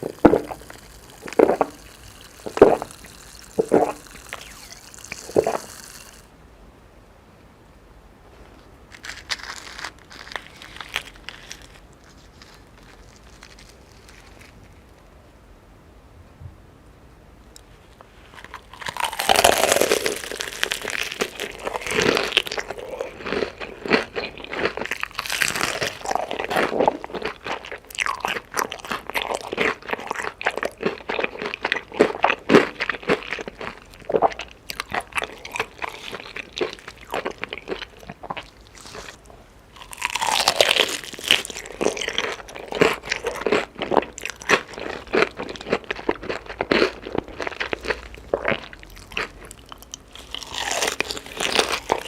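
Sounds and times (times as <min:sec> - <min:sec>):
crunchy bites of chicken: 0:00.0 - 0:06.3, 0:09.0 - 0:14.6, 0:18.3 - 0:52.0
steady chewing: 0:00.0 - 0:06.3, 0:18.3 - 0:52.0.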